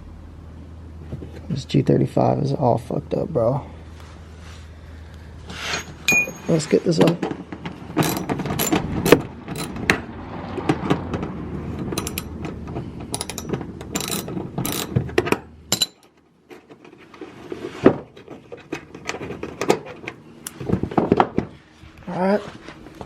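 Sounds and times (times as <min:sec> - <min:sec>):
car jack clicking and clanking: 0:07.8 - 0:10.0, 0:10.7 - 0:16.2.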